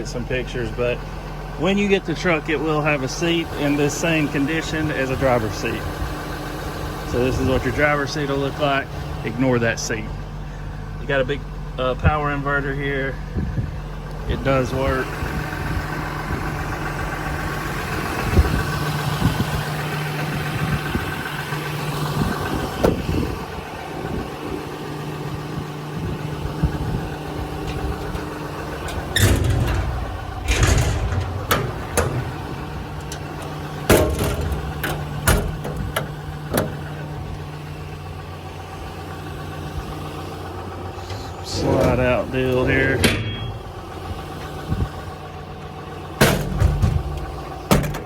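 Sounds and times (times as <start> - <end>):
diesel engine idling: 0.0 - 48.0
knocks and clunks: 26.3 - 37.6, 40.5 - 48.0.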